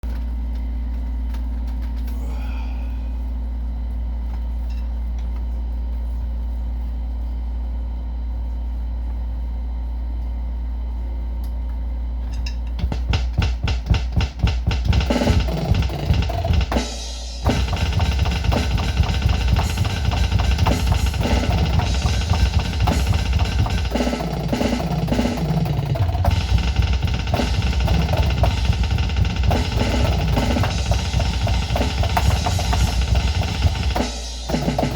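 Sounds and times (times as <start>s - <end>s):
fast electronic drumming: 12.8s - 34.9s
low hum: 17.4s - 34.9s.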